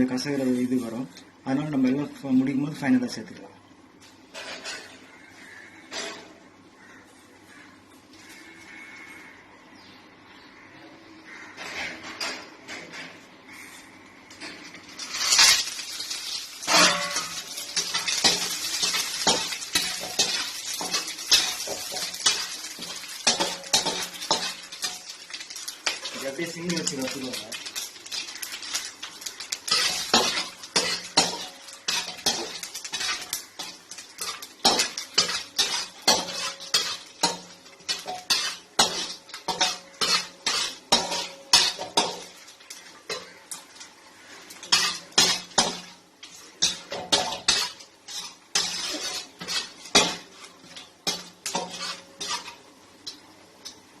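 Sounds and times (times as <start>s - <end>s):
metal spoon scraping a pan: 14.4s - 53.8s.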